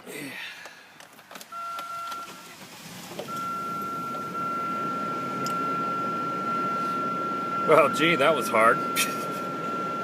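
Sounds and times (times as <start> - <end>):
car engine starting and idling: 0.4 - 10.0
high-pitched warning chime: 3.3 - 10.0.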